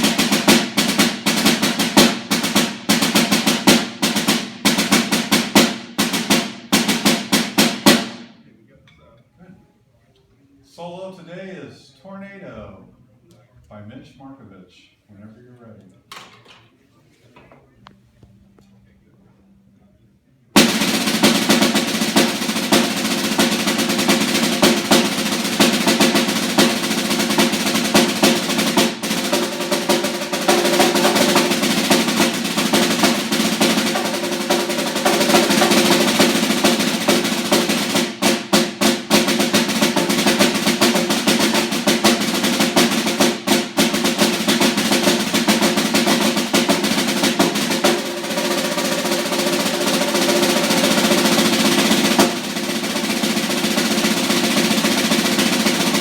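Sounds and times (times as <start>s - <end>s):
snare drum rolls: 0.0s - 8.4s, 20.6s - 56.0s.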